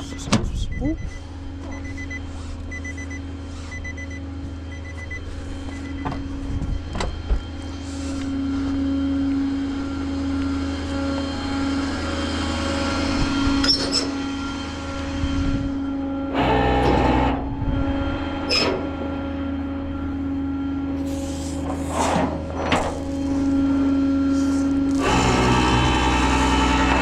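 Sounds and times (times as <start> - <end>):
electronic beeps: 0.0 - 6.1
tow truck engine running: 0.0 - 27.0.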